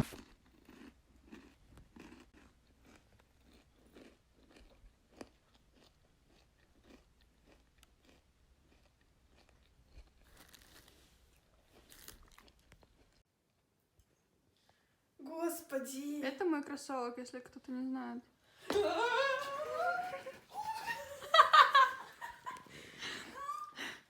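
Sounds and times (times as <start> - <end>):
person chewing food: 0.0 - 13.2.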